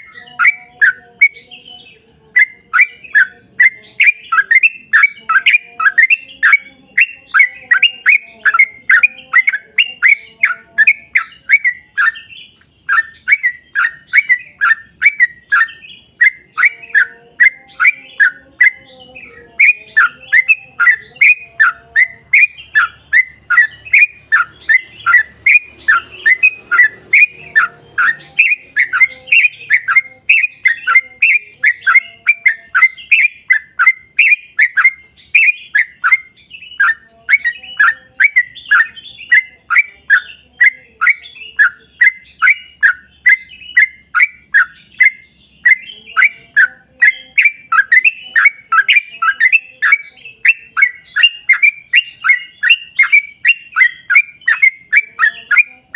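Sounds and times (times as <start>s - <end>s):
bird singing chirping notes: 0.0s - 55.9s.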